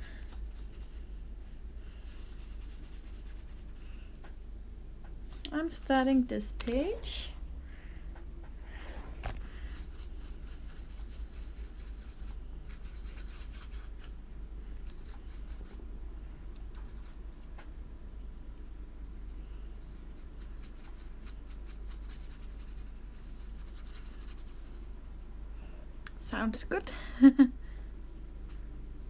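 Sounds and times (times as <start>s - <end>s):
paintbrush strokes on paper: 0.0s - 4.0s, 8.7s - 14.2s, 19.7s - 25.0s
low electrical hum: 0.0s - 29.0s.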